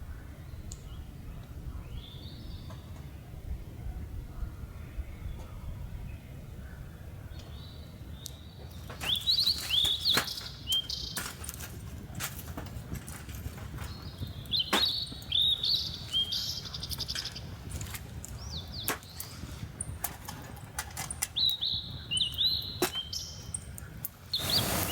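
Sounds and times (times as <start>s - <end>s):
bird calling: 24.3s - 24.9s.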